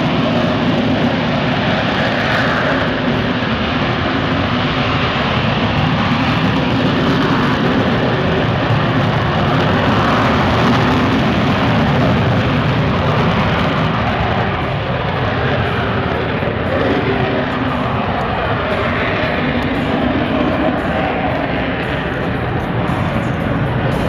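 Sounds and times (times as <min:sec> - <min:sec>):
jet engine roaring: 0:00.0 - 0:24.0.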